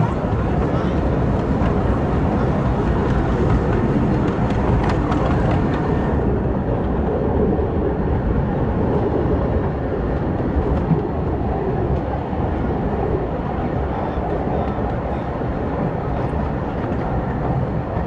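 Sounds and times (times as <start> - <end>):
miniature train rumbling on track: 0.0 - 18.0.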